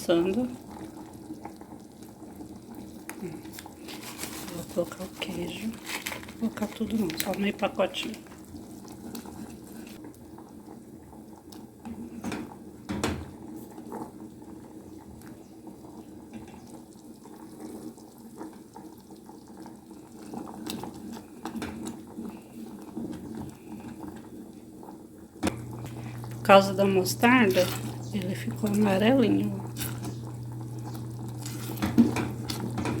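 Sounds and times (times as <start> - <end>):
sauce simmering and bubbling: 0.0 - 33.0.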